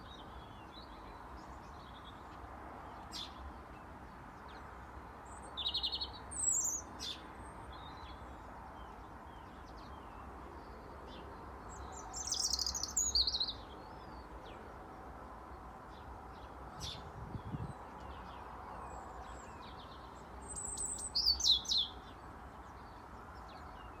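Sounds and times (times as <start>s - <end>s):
robin singing: 5.2s - 14.6s, 15.9s - 24.0s.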